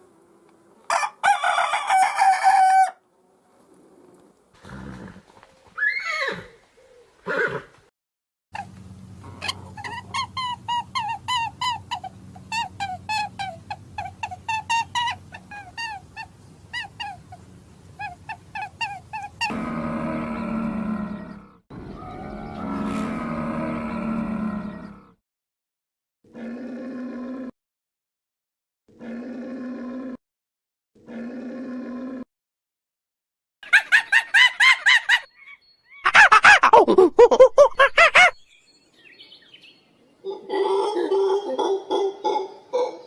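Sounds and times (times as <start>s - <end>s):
low drawn-out animal calls: 8.6s - 17.4s, 18.0s - 25.2s, 26.3s - 27.5s, 28.9s - 30.2s, 31.0s - 32.3s
high chirping animal calls: 9.2s - 25.1s, 35.0s - 36.3s.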